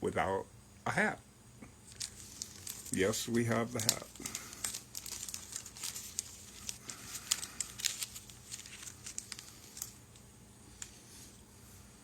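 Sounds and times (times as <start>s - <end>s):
packaging crinkling: 1.9s - 11.3s.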